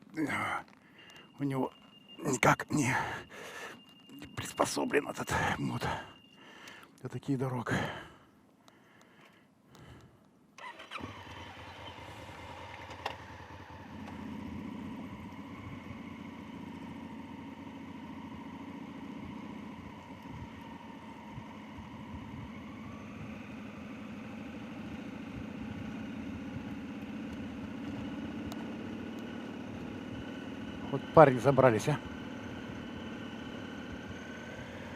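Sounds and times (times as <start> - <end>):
motorcycle engine starting and running: 10.6 - 34.9.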